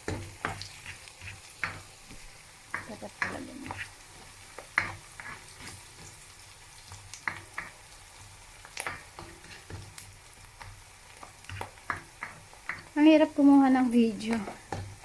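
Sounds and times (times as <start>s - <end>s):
food sizzling in oil: 0.0s - 15.0s
utensil scraping and tapping: 0.1s - 3.9s, 4.6s - 6.1s, 11.2s - 12.9s.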